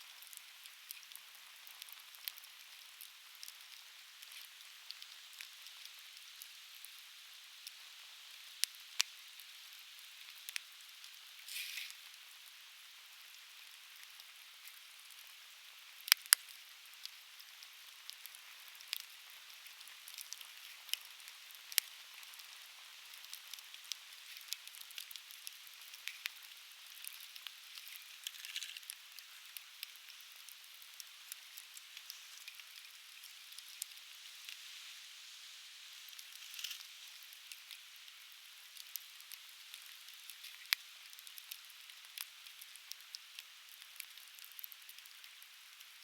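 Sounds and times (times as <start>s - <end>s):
steady hiss: 0.0s - 46.0s
firewood burning and crackling: 0.1s - 7.0s, 7.6s - 35.0s, 36.0s - 46.0s.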